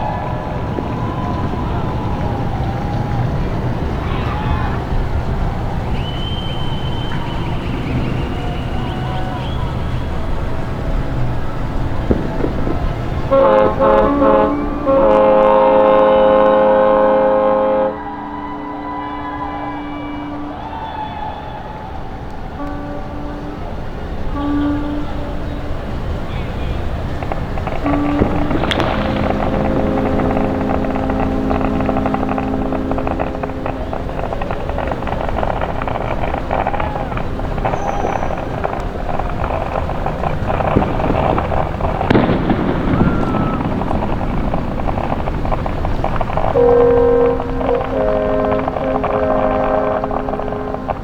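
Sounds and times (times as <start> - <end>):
crackling outdoor noise: 0.0 - 51.0
faint horn tone: 0.0 - 51.0
ship's horn blasts: 0.0 - 51.0
sharp pops: 10.8 - 19.0, 26.6 - 51.0.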